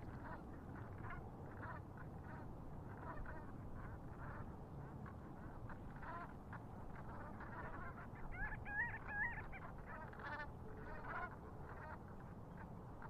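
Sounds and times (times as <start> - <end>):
water birds calling: 0.0 - 13.0.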